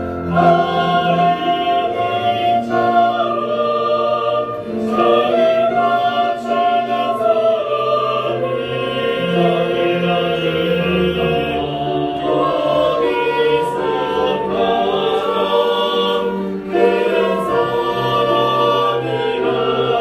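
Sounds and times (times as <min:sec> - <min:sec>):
church choir singing: 0:00.0 - 0:20.0
orchestral accompaniment: 0:00.0 - 0:20.0.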